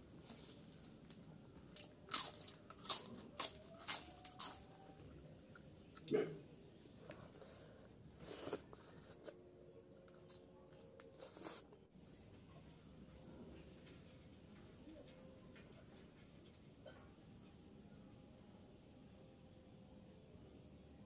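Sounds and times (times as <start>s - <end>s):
person chewing food: 0.2s - 11.8s.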